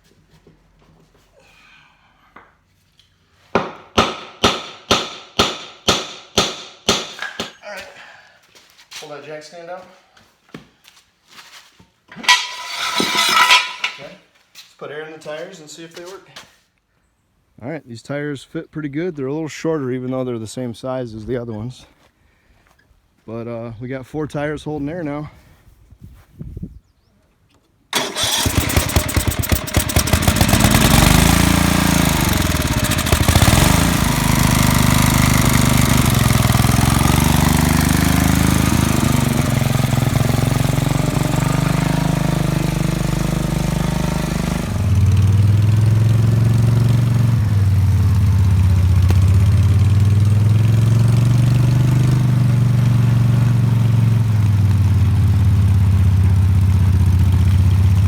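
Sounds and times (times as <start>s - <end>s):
small gasoline engine running: 28.0s - 58.0s.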